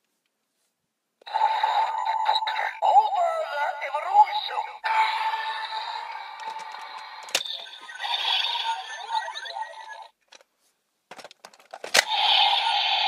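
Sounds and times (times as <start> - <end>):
toy electronic sound effects: 1.2 - 10.1, 12.0 - 13.0
plastic clicks: 6.4 - 7.5, 11.1 - 12.1.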